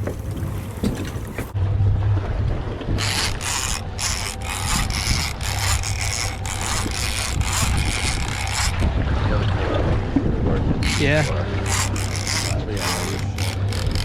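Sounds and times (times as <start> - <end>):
boat engine humming: 0.0 - 14.0
fishing reel ratcheting: 3.0 - 8.9, 10.8 - 14.0.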